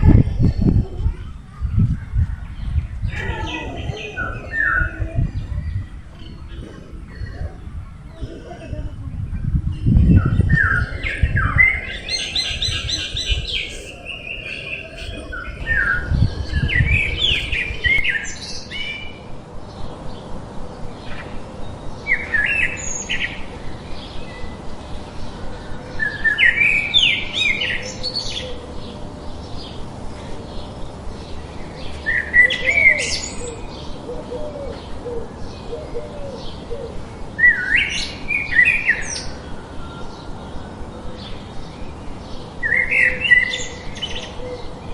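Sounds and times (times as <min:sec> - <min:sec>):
low rumble: 0:00.0 - 0:22.4
songbird singing sweeping notes: 0:09.4 - 0:44.9.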